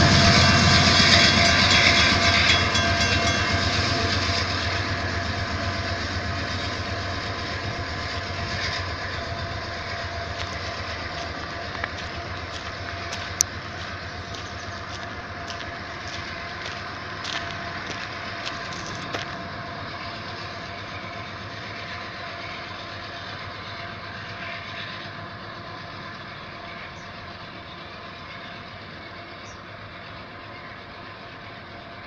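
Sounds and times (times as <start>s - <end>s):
train wheels clattering on rails: 0.0s - 32.0s.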